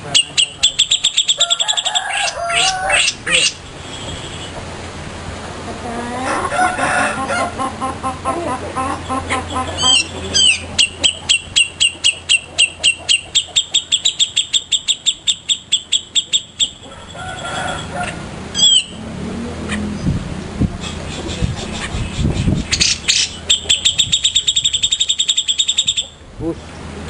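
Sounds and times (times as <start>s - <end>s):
soft low bird calls: 8.9s - 19.0s, 20.8s - 26.2s
songbird whistling and trilling: 9.8s - 16.8s, 18.6s - 19.0s, 22.1s - 26.2s.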